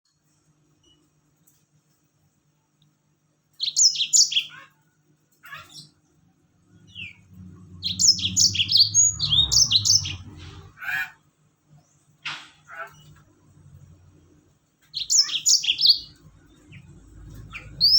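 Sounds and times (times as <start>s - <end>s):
canary singing: 3.6s - 4.7s, 6.6s - 11.2s, 14.9s - 17.9s
low rumble: 6.6s - 10.8s.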